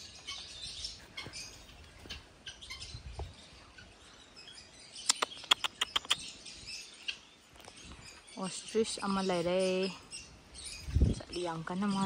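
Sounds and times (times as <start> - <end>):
small birds chirping: 0.0 - 12.0
sharp clicks: 5.1 - 6.3.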